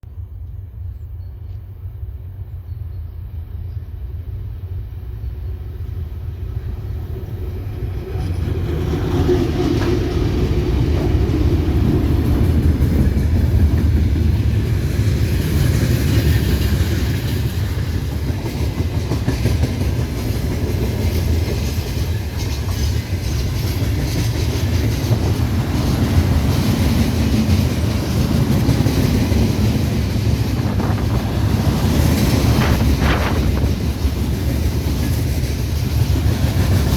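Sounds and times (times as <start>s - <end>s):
heavy low rumble of train: 0.0s - 36.9s
freight train wheels clattering: 7.9s - 36.9s.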